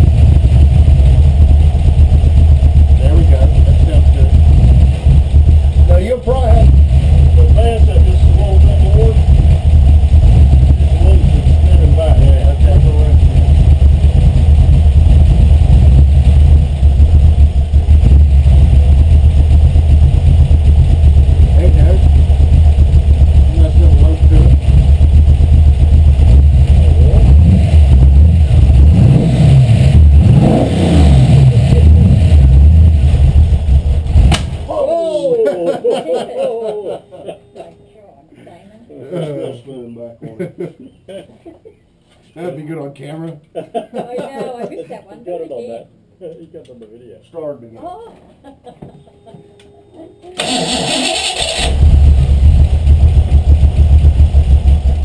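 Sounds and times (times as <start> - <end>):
vee eight engine idling: 0.0 - 35.1
engine starter cranking: 50.4 - 51.9.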